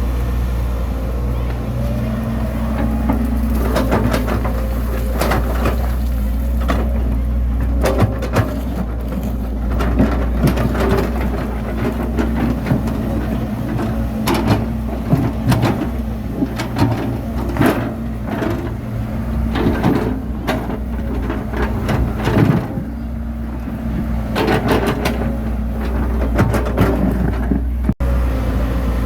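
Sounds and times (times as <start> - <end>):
bulldozer diesel engine running: 0.0 - 29.0
metallic clanks and knocks: 2.8 - 18.8, 24.3 - 28.0.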